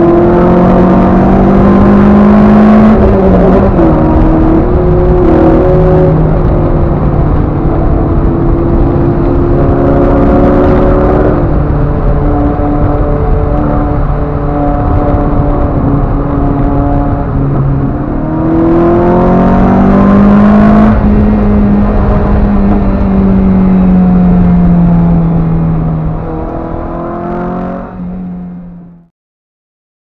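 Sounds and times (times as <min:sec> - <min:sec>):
car engine accelerating: 0:00.0 - 0:29.1.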